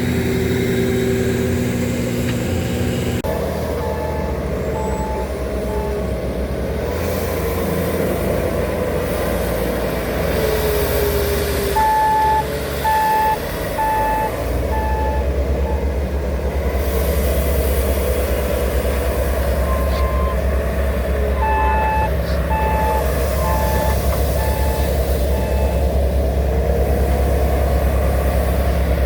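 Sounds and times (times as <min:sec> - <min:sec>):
diesel construction machinery running: 0:00.0 - 0:29.0
reversing alarm beeping: 0:03.7 - 0:06.1, 0:11.8 - 0:16.0, 0:19.6 - 0:20.5, 0:21.4 - 0:26.0.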